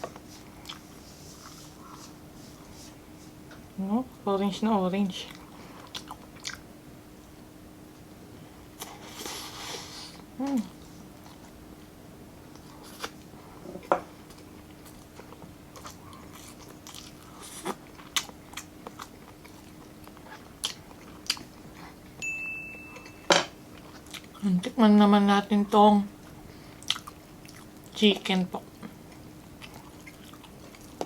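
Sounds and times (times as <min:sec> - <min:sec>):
chewing and lip smacks: 0:00.1 - 0:00.9, 0:05.3 - 0:06.7, 0:14.2 - 0:22.0, 0:26.8 - 0:28.0, 0:28.6 - 0:31.0
person humming: 0:10.4 - 0:10.7.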